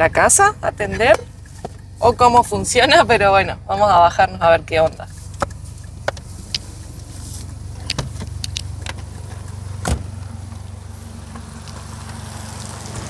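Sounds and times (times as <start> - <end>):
car engine idling: 0.0 - 13.0
sharp clicks: 7.8 - 9.1.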